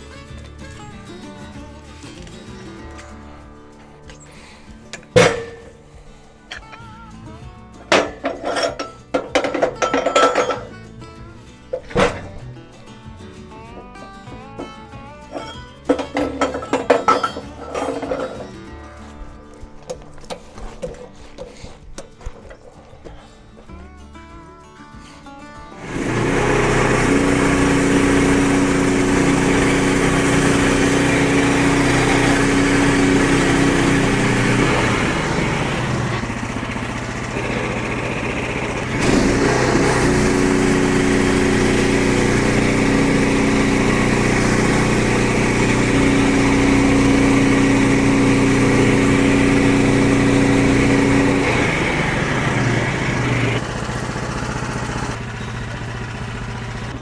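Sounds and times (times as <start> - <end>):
small gas engine running: 0.0 - 6.6, 14.6 - 18.5, 25.7 - 57.0.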